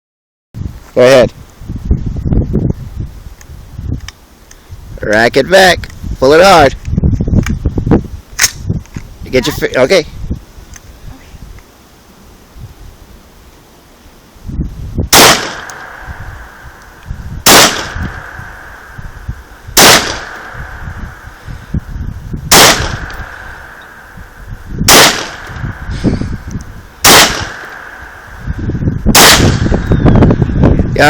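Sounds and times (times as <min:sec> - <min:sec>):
gunshots with ringing: 0:15.1 - 0:16.7, 0:17.4 - 0:21.5, 0:22.5 - 0:26.0, 0:27.0 - 0:28.5, 0:29.1 - 0:30.0.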